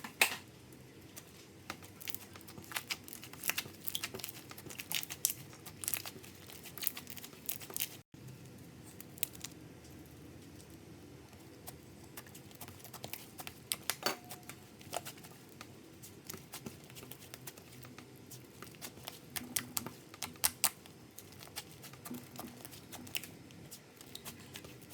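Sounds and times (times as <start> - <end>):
sticky clicks and crackles: 1.1 - 10.8, 11.4 - 24.9
slime squished by hand: 1.7 - 8.0.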